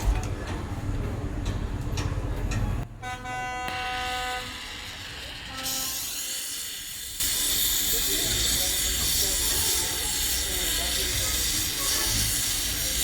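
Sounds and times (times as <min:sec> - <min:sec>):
vehicle horn: 0:02.9 - 0:04.7, 0:05.5 - 0:06.4.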